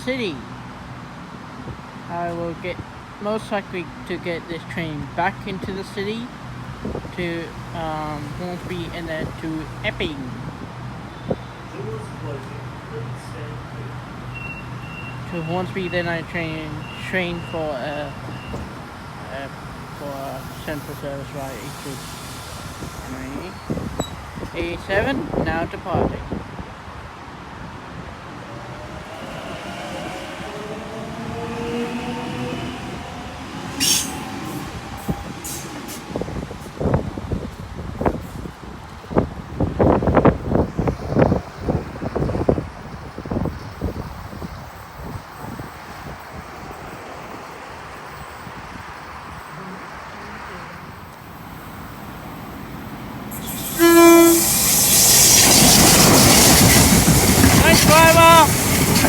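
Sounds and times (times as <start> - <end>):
train rushing past: 0.0 - 49.5, 50.4 - 59.0
train horn blast: 29.1 - 36.4, 53.4 - 55.1
short hiss: 53.3 - 56.8
electric train motors whining: 53.3 - 59.0.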